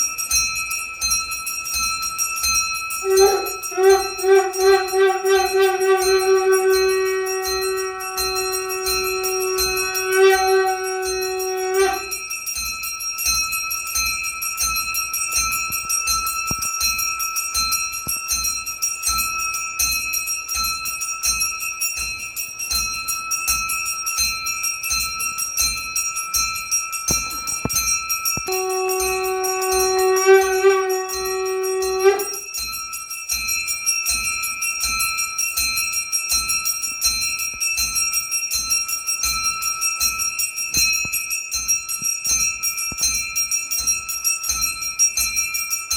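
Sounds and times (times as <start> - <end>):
bells ringing rapidly: 0.0 - 45.9
long held ringing note: 3.0 - 12.4, 28.4 - 32.7.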